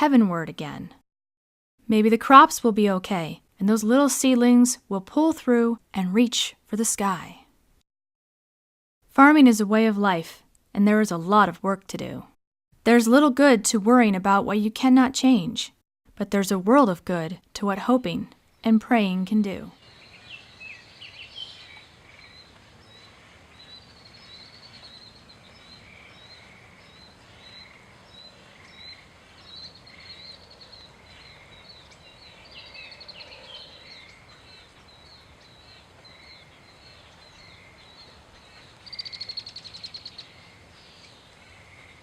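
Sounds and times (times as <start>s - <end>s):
songbirds chirping and singing: 19.8s - 42.0s.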